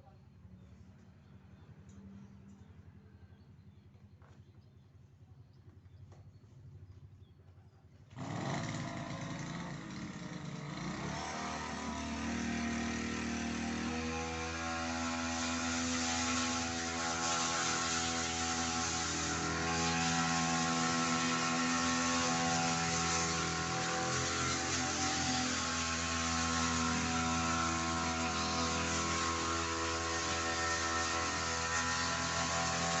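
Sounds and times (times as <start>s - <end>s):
grass cutter engine: 8.1s - 33.0s.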